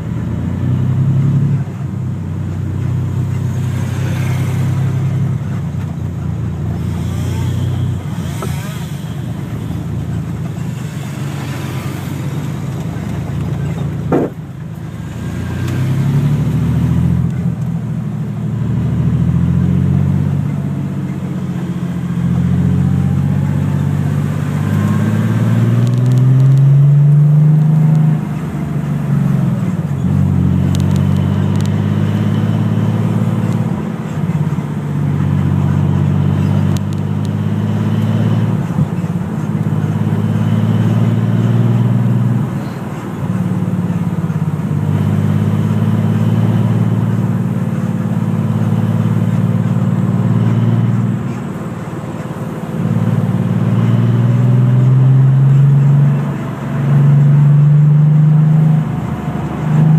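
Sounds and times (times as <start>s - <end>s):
car engine accelerating: 0.0s - 59.9s
road and wind noise: 0.0s - 59.9s
short sharp knock: 14.1s - 14.4s.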